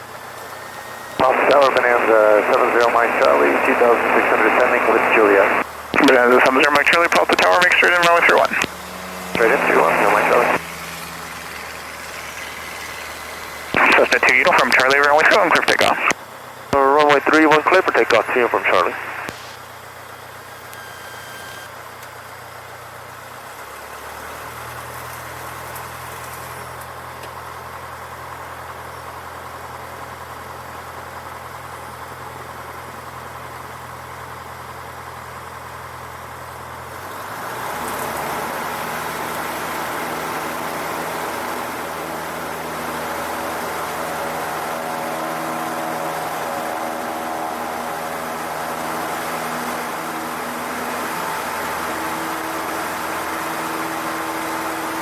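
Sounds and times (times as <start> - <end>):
small plane engine running: 0.0 - 26.8, 27.5 - 55.0.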